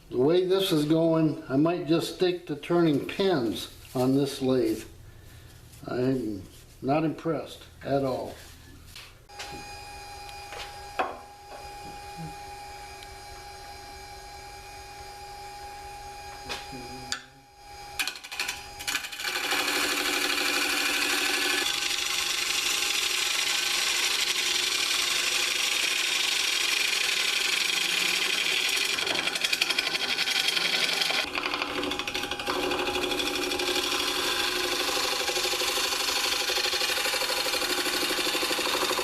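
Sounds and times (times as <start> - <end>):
wood lathe motor hum: 9.3 - 39.0.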